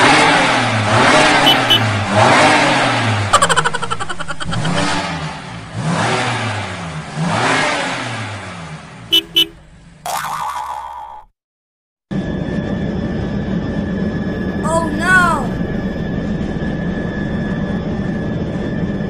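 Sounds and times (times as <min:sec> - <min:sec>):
motorbike engine revving: 0:00.0 - 0:09.7.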